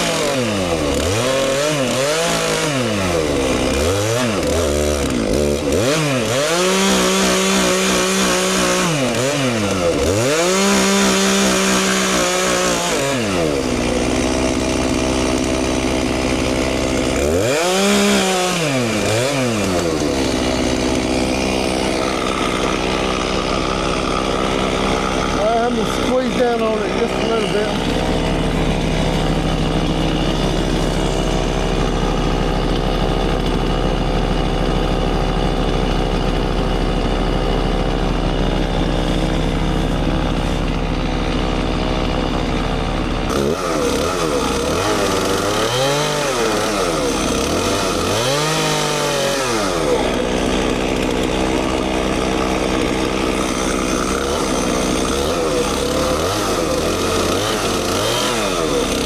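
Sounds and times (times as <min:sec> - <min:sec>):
chainsaw engine running: 0:00.0 - 0:59.0.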